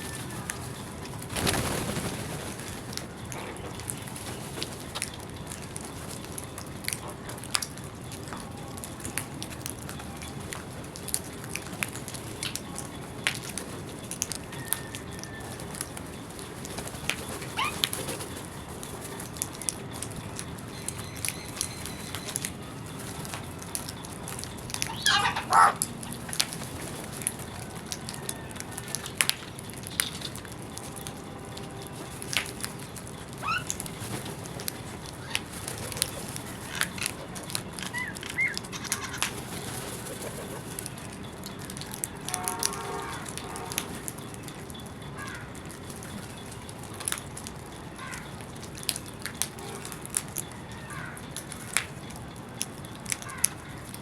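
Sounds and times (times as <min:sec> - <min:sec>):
bird wing flaps: 0:00.1 - 0:03.0
bird calls: 0:14.3 - 0:30.4, 0:32.0 - 0:41.2.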